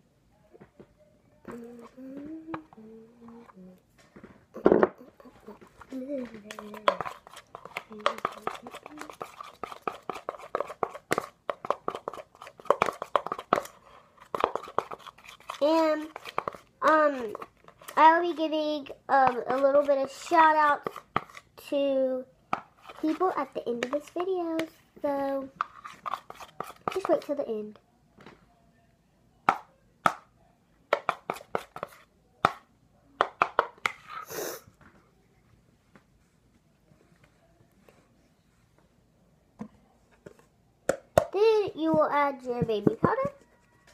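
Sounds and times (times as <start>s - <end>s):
spoon stirring in a bowl: 5.5s - 18.5s, 19.1s - 21.6s, 22.5s - 27.4s, 30.9s - 32.6s.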